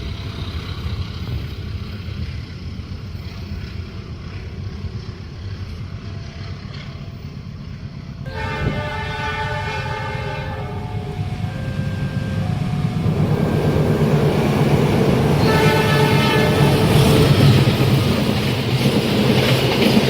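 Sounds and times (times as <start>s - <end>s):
train rumbling: 0.0s - 20.0s
train horn: 8.3s - 17.7s.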